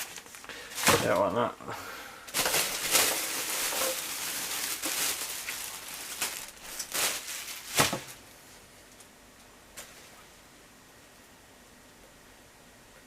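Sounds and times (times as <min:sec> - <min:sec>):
packaging rustling and crinkling: 0:00.0 - 0:01.4, 0:02.3 - 0:09.1.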